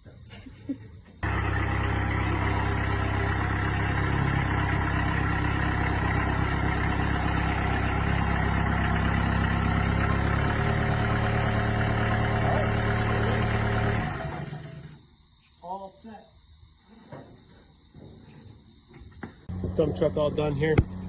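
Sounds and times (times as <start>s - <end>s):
diesel engine idling: 1.2s - 15.0s.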